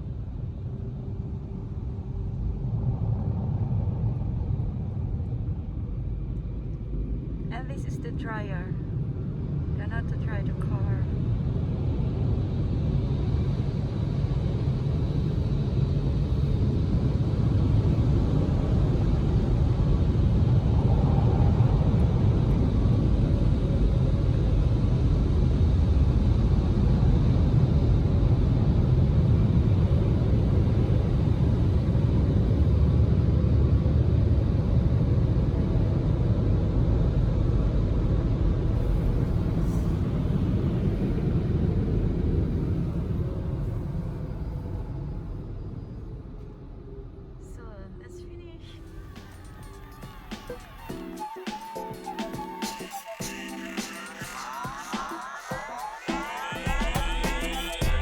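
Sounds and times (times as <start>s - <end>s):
car wash blower dryers blasting air: 38.7s - 45.0s.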